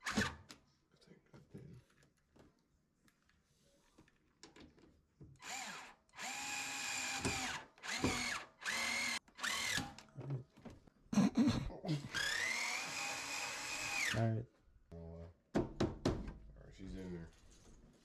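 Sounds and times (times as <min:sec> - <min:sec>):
cordless drill whining: 0:05.4 - 0:10.0, 0:12.1 - 0:14.2.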